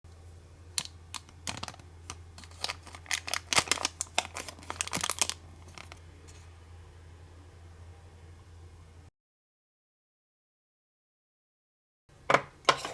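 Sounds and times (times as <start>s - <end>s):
low steady hum: 0.1s - 9.1s
plastic packaging crinkling: 0.7s - 6.4s.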